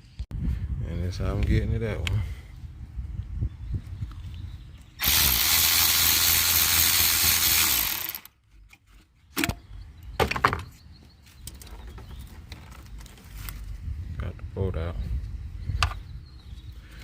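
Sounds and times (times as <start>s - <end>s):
power tool running: 5.0s - 8.3s.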